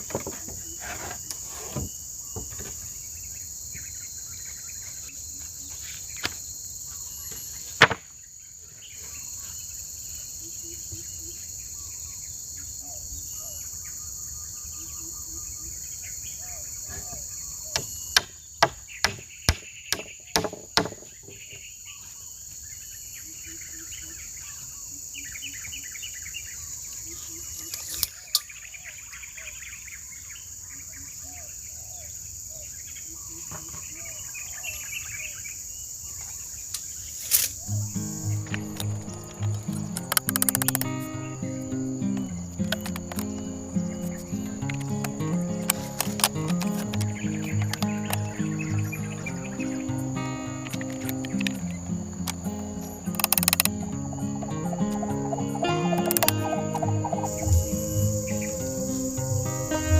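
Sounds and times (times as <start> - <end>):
crickets chirping: 0.0 - 59.9
sharp knocks: 17.8 - 21.1.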